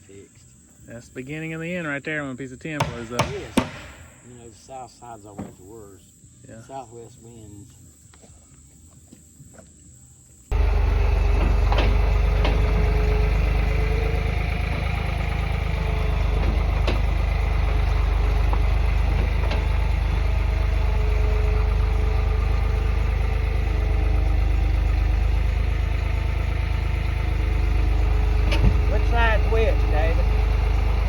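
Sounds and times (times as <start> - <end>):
sharp knocks: 2.8 - 4.3
engine idling with deep rumble: 10.5 - 31.0.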